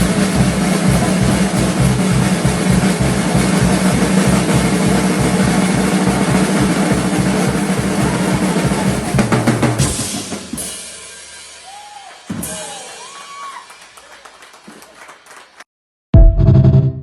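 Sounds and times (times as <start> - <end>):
music with drum kit beat: 0.0 - 13.0.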